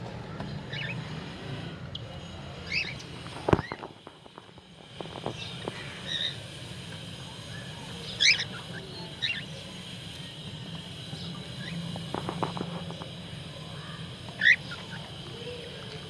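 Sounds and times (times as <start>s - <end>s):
steady low hum: 0.0s - 16.0s
cockatiels chirping: 2.6s - 3.8s, 7.6s - 9.8s, 14.3s - 15.1s.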